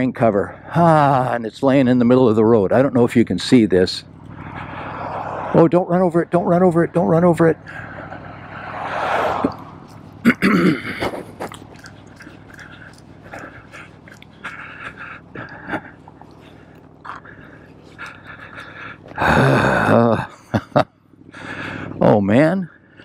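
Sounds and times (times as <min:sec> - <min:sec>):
heavy breathing: 0:04.2 - 0:05.6, 0:07.6 - 0:20.5, 0:21.2 - 0:22.0
clicks and scuffs: 0:10.9 - 0:17.2.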